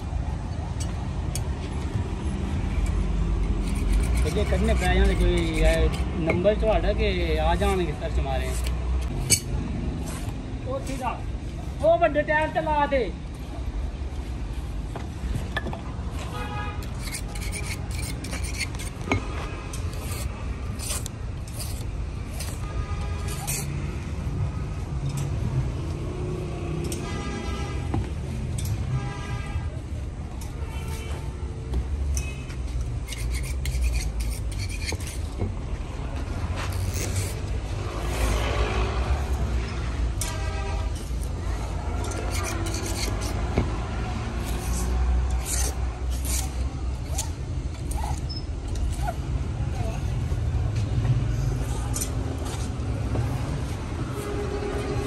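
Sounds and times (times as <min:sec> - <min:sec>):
rasping scrapes: 0:03.4 - 0:11.2, 0:16.8 - 0:24.0, 0:32.8 - 0:35.4, 0:36.2 - 0:49.2
brief squeak: 0:47.9 - 0:49.2.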